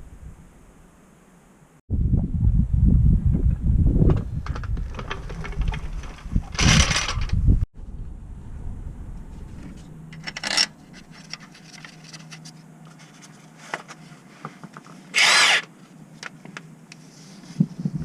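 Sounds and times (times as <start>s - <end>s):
cordless power tool whining: 15.2s - 15.7s.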